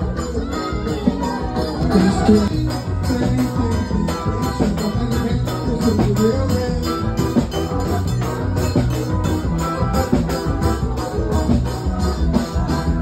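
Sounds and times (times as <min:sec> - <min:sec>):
drum beat: 0:00.0 - 0:13.0
live band music: 0:00.0 - 0:13.0
shaker percussion: 0:00.0 - 0:13.0.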